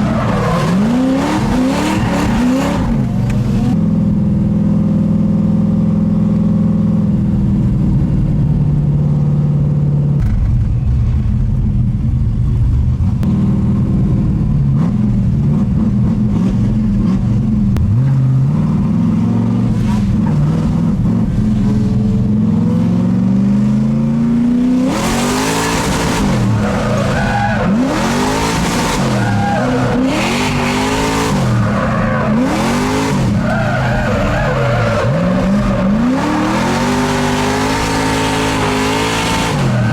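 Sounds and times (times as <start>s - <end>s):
car engine accelerating hard: 0.0s - 39.9s
tyres squealing: 26.5s - 36.4s.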